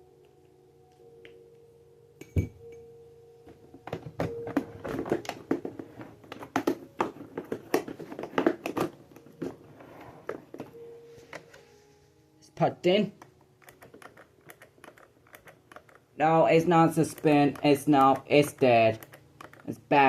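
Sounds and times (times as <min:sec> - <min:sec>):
clicks knocks and rattles: 0:13.2 - 0:16.1, 0:17.0 - 0:19.8.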